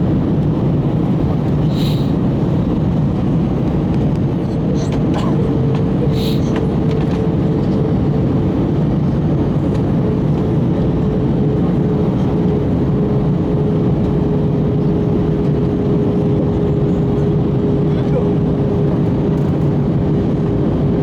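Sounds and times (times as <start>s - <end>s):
airplane cabin noise: 0.0s - 21.0s.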